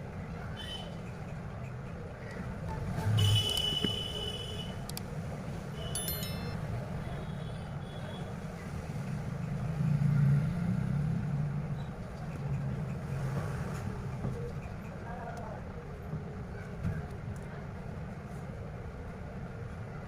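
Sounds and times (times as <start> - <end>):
low traffic rumble: 0.0 - 20.0
high beeps: 6.0 - 6.6
high tone: 6.0 - 6.6.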